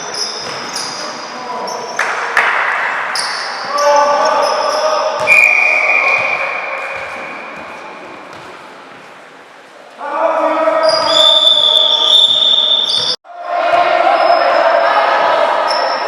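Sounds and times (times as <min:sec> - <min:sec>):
sneaker squeaks: 0:00.0 - 0:02.1, 0:03.0 - 0:09.1, 0:10.8 - 0:14.7, 0:15.6 - 0:16.0
basketball bouncing: 0:06.0 - 0:08.6
voices shouting: 0:10.1 - 0:16.0.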